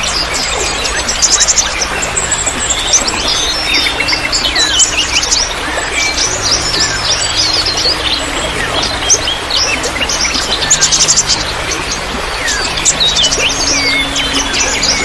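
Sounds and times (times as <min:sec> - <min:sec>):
songbirds chirping: 0:00.0 - 0:15.0
trickle of running water: 0:00.0 - 0:15.0.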